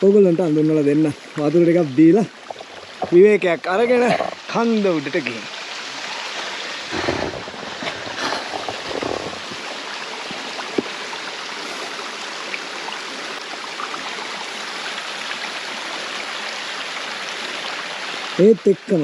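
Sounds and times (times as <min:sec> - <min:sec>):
small stream running: 0:00.0 - 0:19.0
low bumps and rustles: 0:02.4 - 0:03.5, 0:06.9 - 0:11.0.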